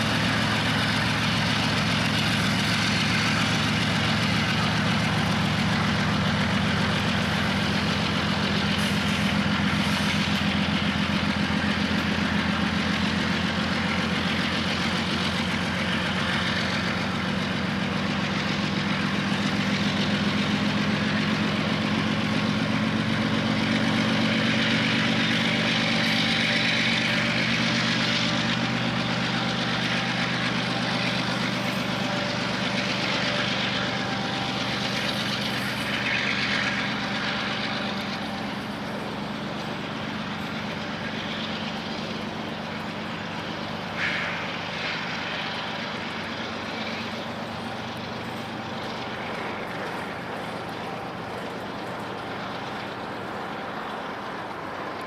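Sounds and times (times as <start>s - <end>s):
large diesel engine droning: 0.0s - 55.0s.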